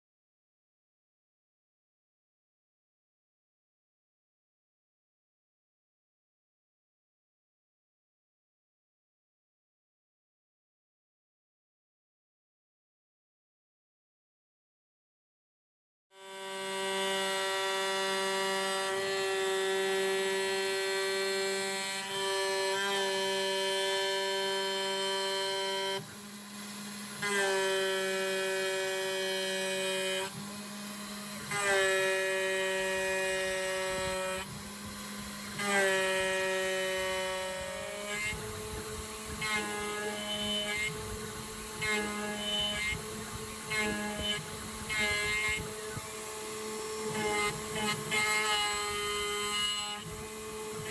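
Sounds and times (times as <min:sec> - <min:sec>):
cutter chirping on metal: 0:16.2 - 0:50.9
router spindle whining: 0:16.2 - 0:50.9.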